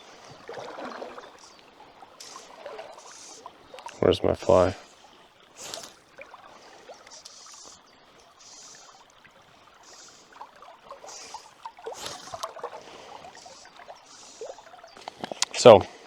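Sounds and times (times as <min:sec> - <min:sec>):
soft high hiss: 0:00.0 - 0:15.9
river water flowing: 0:00.0 - 0:16.0
handling clicks and rustles: 0:15.0 - 0:15.8.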